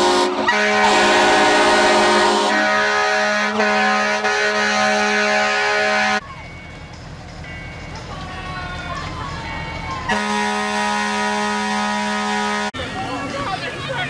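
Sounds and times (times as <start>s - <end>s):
fire truck air horns: 0.0s - 6.2s, 10.1s - 12.9s.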